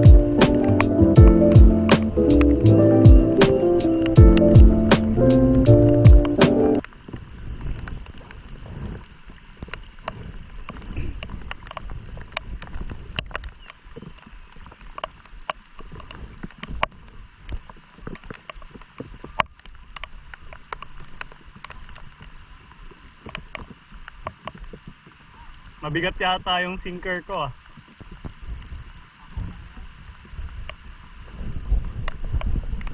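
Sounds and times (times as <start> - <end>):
river flowing: 0.0 - 12.7
small clicks and taps: 9.0 - 22.4, 23.2 - 25.0.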